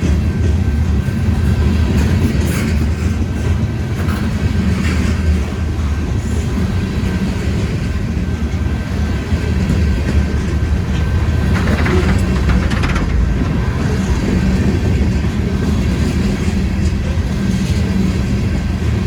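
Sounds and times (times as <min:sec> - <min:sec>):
freight train rumbling past: 0:00.0 - 0:19.0
wheel clicks over rails: 0:09.6 - 0:15.5.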